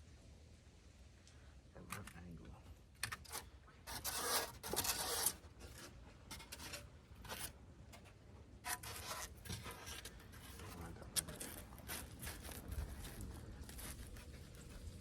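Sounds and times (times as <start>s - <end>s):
scraping and rubbing foam board: 3.2s - 15.0s.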